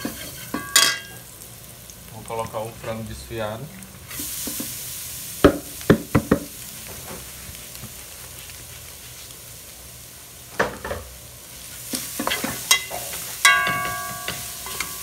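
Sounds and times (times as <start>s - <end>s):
chicken sizzling in butter: 0.0s - 15.0s
metal spoon knocking on pot: 12.7s - 15.0s.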